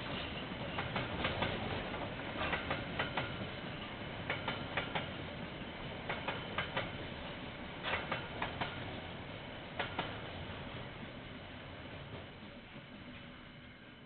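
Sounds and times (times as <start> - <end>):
train wheels clicking over rail joint: 0.0 - 5.3, 6.0 - 7.1, 7.8 - 10.4
train wagons rumbling: 0.0 - 13.8.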